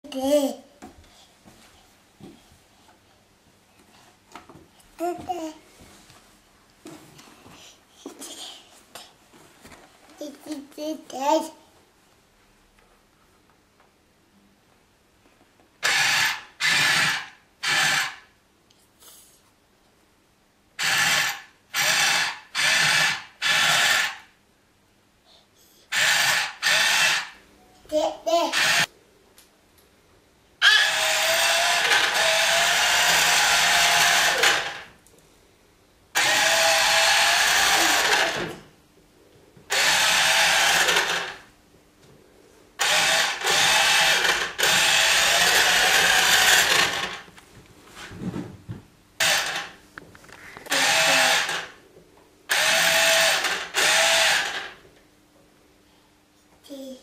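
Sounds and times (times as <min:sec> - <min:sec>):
electric motor whining: 0:30.7 - 0:34.8, 0:36.2 - 0:38.6, 0:39.7 - 0:41.4, 0:42.8 - 0:47.2, 0:50.7 - 0:51.7, 0:52.5 - 0:54.7.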